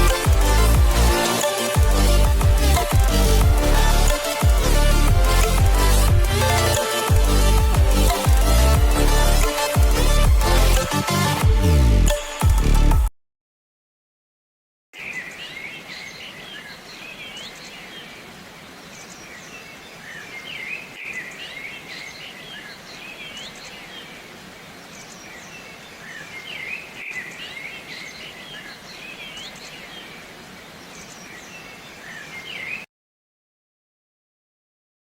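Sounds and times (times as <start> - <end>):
small birds chirping: 15.0 - 32.9.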